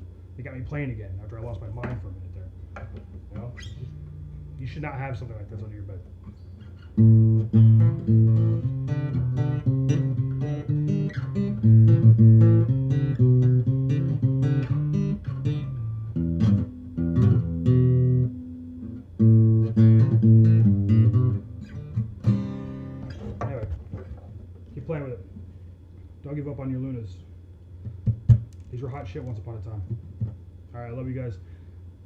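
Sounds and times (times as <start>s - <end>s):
acoustic guitar picking: 1.7s - 4.7s, 6.1s - 25.6s.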